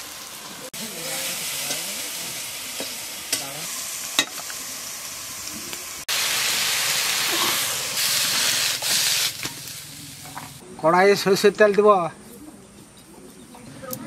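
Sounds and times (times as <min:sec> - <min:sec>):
mushrooms sizzling in oil: 0:00.0 - 0:10.6.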